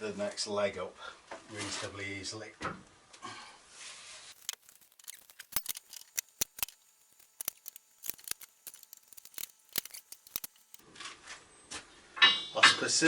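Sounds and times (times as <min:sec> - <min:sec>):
sharp irregular clicks and taps: 0:04.4 - 0:10.8.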